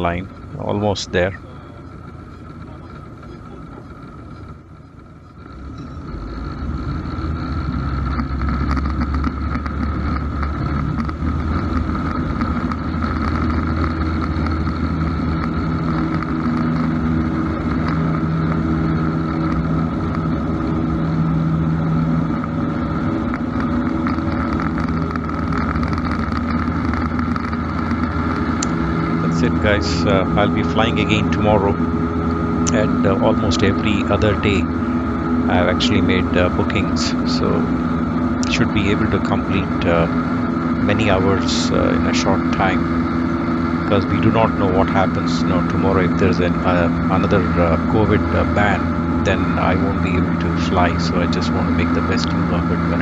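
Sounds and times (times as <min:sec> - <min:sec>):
propeller plane engine: 0:00.0 - 0:53.0.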